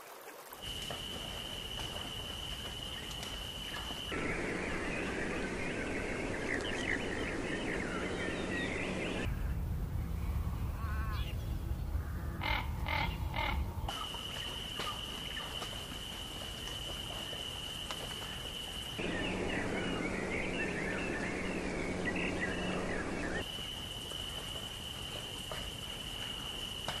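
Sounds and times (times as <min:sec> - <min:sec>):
chorus of bird chirps: 0:02.8 - 0:09.5, 0:19.0 - 0:23.4.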